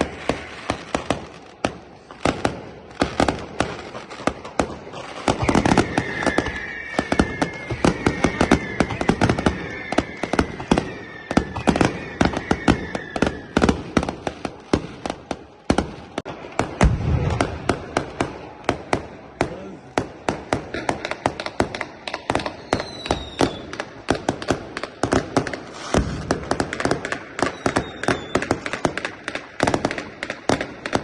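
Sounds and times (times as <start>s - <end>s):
firecracker bangs: 0.0s - 31.0s
high firework whistles: 0.0s - 31.0s.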